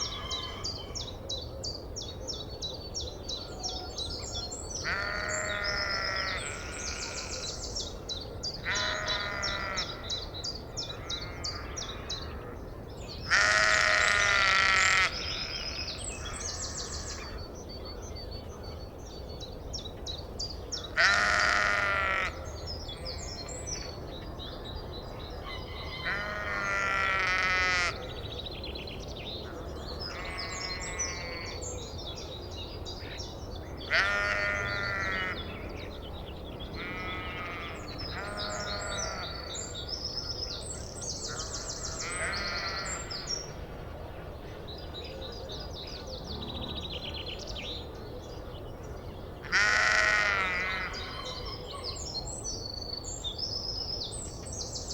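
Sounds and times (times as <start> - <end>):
long animal calls: 49.4 - 51.7.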